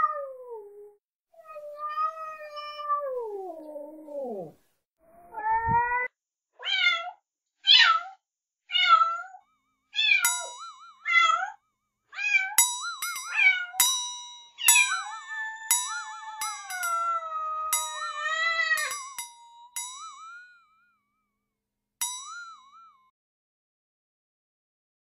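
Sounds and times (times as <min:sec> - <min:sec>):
cats meowing: 0:01.4 - 0:04.6, 0:05.2 - 0:08.1, 0:14.6 - 0:19.0
wobbling tone: 0:10.2 - 0:11.3, 0:12.6 - 0:20.6
bell-like dings: 0:10.2 - 0:11.5, 0:12.5 - 0:21.0, 0:22.0 - 0:23.1.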